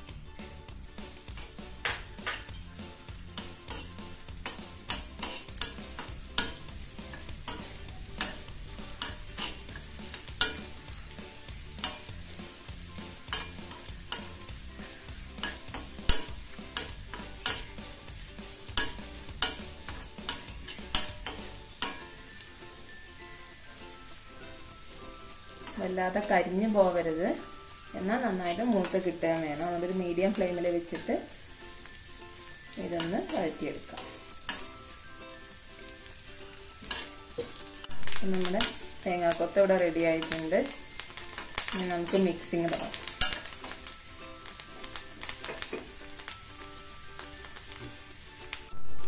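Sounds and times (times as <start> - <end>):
coconut sizzling in ghee: 0.0 - 49.0
spoon clinking and scraping pan: 1.2 - 22.9, 24.1 - 26.3, 26.9 - 48.0.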